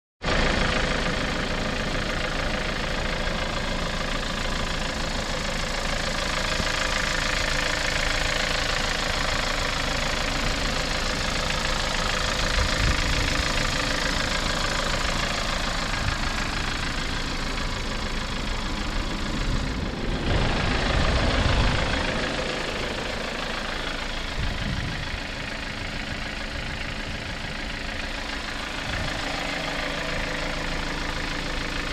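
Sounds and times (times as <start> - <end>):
car engine idling: 0.2 - 31.9
low rumble: 8.5 - 31.9.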